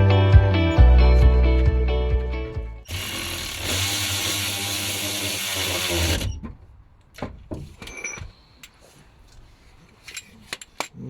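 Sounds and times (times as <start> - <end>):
handheld power tool running: 2.9 - 6.3.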